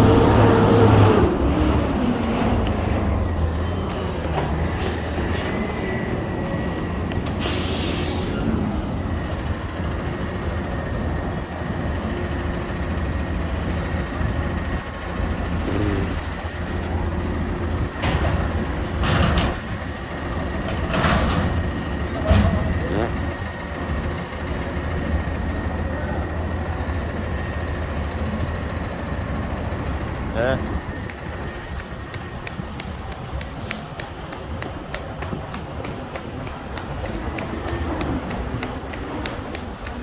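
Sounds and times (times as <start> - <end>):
garbage truck diesel engine: 0.0 - 40.0
air hissing: 7.3 - 8.6.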